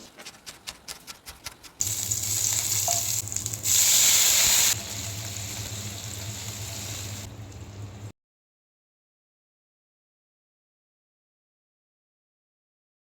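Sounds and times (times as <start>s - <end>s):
chicken sizzling in hot oil: 1.8s - 8.1s
low steady hum: 4.8s - 8.1s.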